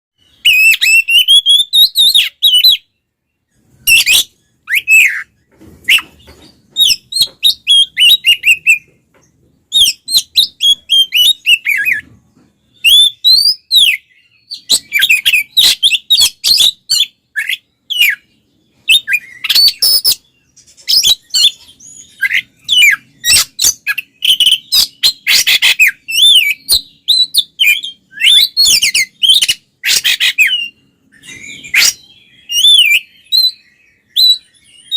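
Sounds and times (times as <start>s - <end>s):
bird singing whistles and chirps: 0.2s - 34.9s.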